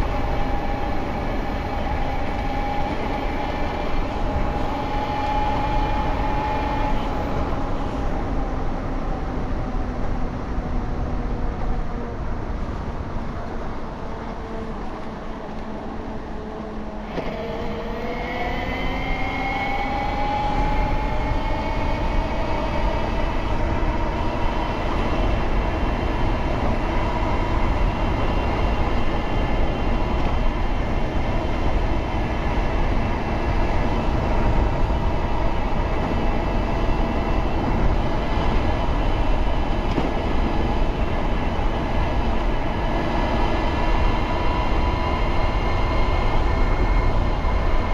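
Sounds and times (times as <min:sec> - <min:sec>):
wind rumble on microphone: 0:00.0 - 0:47.9
electric bike motor whining: 0:17.0 - 0:47.8.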